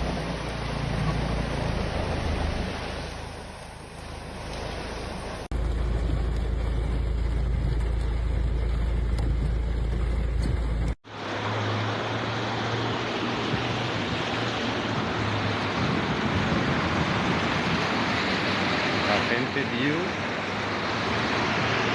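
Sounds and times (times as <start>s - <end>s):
deep rumble: 0.0s - 11.0s
floodwater rushing: 0.0s - 21.9s.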